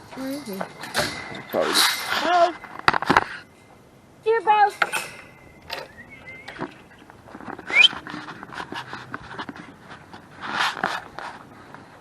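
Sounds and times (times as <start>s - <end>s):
rustling: 4.7s - 12.0s.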